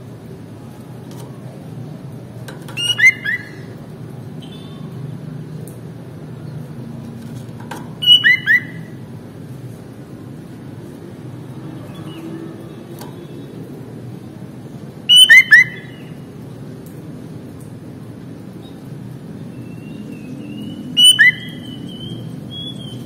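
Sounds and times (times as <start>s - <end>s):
bird whistled calls: 2.7s - 3.7s, 8.0s - 9.0s, 15.1s - 16.1s, 19.6s - 23.0s.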